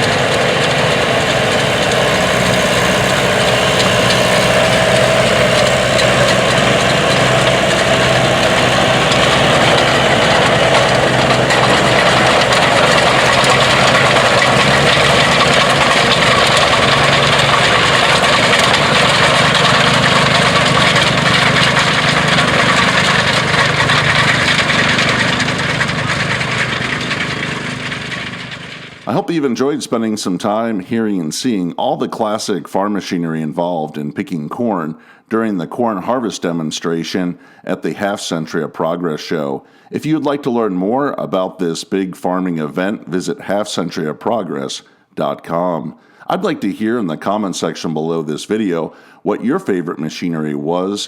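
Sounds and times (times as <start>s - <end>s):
tractor engines clattering: 0.0s - 30.6s.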